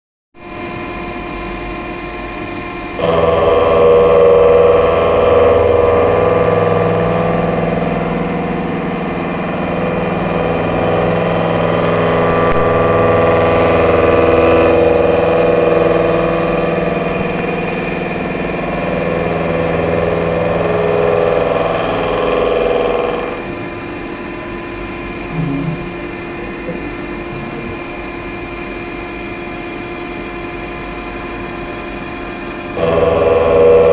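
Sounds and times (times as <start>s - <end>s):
machine humming: 0.4s - 29.6s, 31.6s - 33.9s
milling cutter cutting steel: 3.0s - 23.7s, 32.8s - 33.9s.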